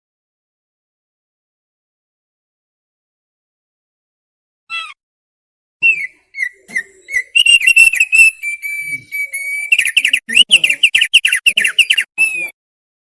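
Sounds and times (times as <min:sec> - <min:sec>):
bird singing whistled notes: 0:05.8 - 0:12.5.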